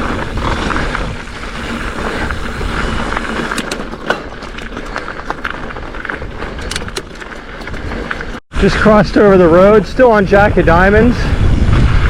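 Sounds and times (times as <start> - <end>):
bike rattling: 0.0 - 8.4
tyre noise on dirt: 0.0 - 8.4
wind rush over camera: 10.6 - 12.0.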